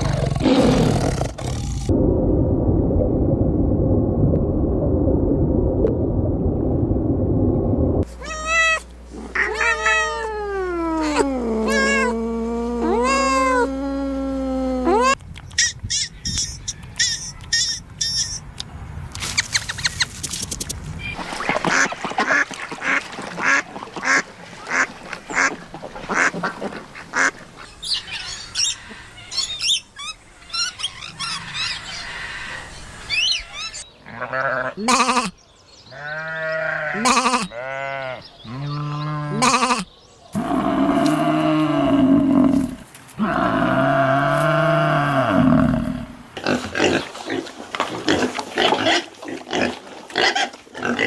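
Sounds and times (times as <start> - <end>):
drawn-out pitched animal calls: 8.0 - 15.2.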